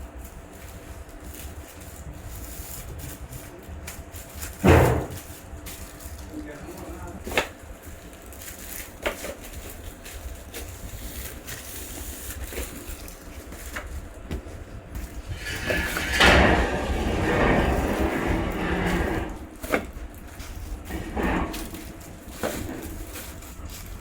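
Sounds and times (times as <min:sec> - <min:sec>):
rough scraping noise: 0:15.1 - 0:23.7.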